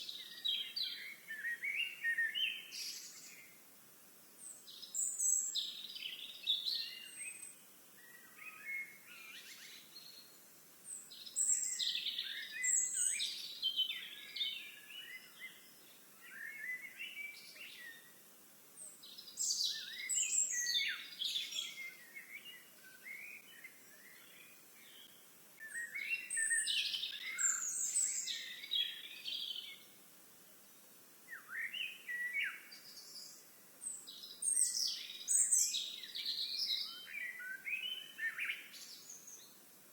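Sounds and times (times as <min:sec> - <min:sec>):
faint background hiss: 0:00.0 - 0:39.9
songbird chirps and trills: 0:00.0 - 0:39.9.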